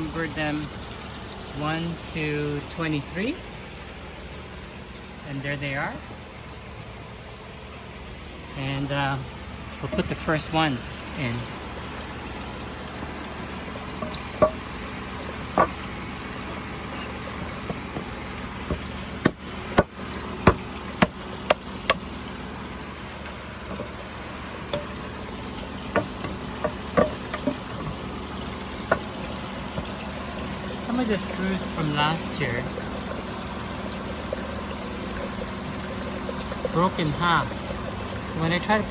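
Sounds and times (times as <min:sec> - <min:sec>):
rush of pond water: 0:00.0 - 0:38.9
wooden knocks and clicks: 0:13.9 - 0:15.9, 0:16.9 - 0:22.0, 0:24.7 - 0:25.0, 0:25.6 - 0:28.2, 0:28.8 - 0:30.0.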